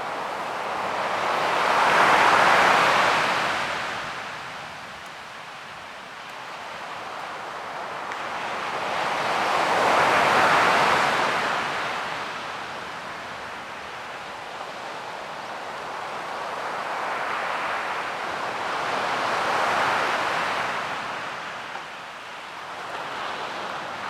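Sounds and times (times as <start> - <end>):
ocean waves washing in: 0.0 - 4.9.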